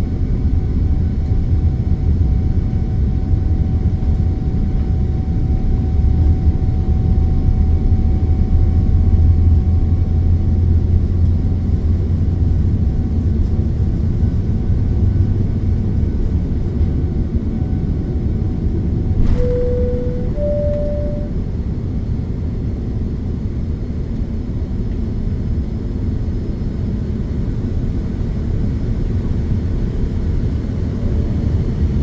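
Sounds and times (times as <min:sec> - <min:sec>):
thin steady whine: 0:19.2 - 0:21.6.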